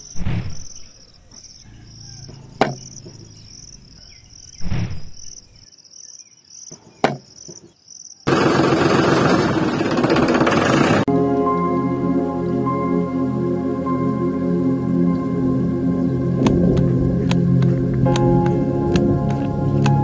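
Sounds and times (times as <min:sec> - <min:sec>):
crickets chirping: 0:00.0 - 0:08.4
clay bricks tapping and thudding: 0:02.6 - 0:03.2, 0:06.7 - 0:07.8.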